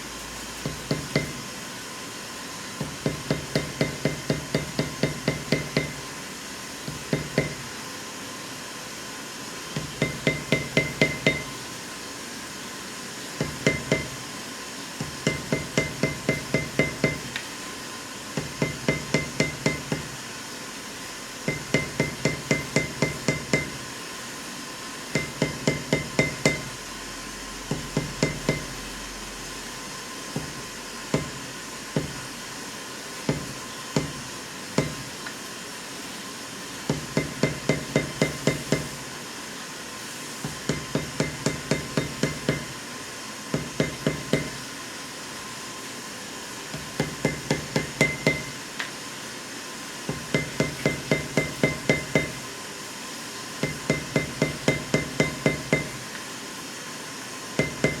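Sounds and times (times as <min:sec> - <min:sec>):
mallet striking metal stamping tool: 0:00.6 - 0:01.4, 0:02.8 - 0:06.0, 0:06.9 - 0:07.6, 0:09.8 - 0:11.6, 0:13.4 - 0:14.2, 0:15.0 - 0:17.4, 0:18.4 - 0:20.1, 0:21.5 - 0:23.8, 0:25.1 - 0:26.8, 0:27.7 - 0:28.8, 0:30.4 - 0:31.4, 0:32.0 - 0:32.2, 0:33.3 - 0:34.2, 0:34.8 - 0:35.1, 0:36.9 - 0:39.0, 0:40.4 - 0:42.8, 0:43.5 - 0:44.6, 0:46.7 - 0:48.6, 0:50.1 - 0:52.4, 0:53.6 - 0:56.0, 0:57.6 - 0:58.0.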